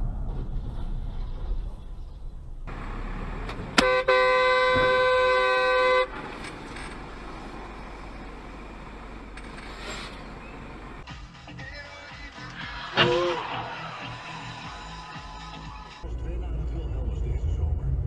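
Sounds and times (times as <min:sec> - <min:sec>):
traffic noise: 0:00.0 - 0:18.0
car horn: 0:03.7 - 0:06.3.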